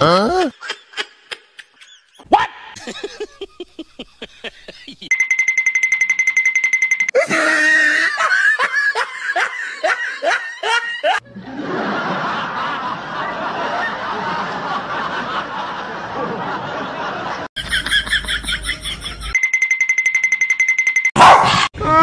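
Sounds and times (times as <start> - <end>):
person laughing hard: 0.0 - 5.1, 7.1 - 12.1, 17.6 - 19.4.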